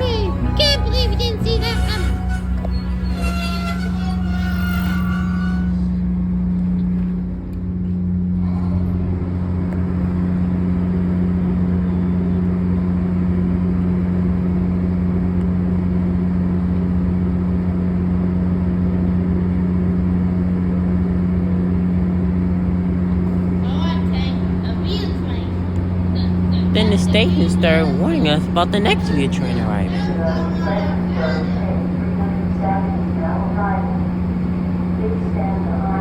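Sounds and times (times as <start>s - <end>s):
background music: 0.0s - 4.9s, 26.7s - 30.2s
diesel locomotive droning: 0.0s - 13.3s, 22.8s - 36.0s.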